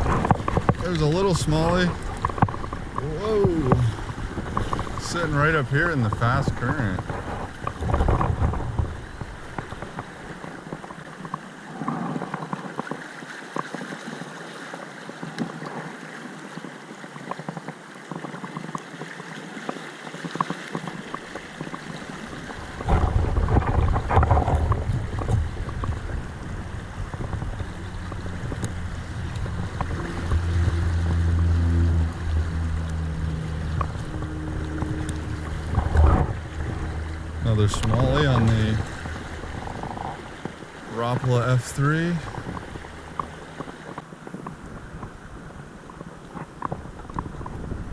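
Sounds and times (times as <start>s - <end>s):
low rumble: 0.0s - 10.2s, 21.3s - 45.9s
creek rushing over rocks: 0.0s - 47.9s.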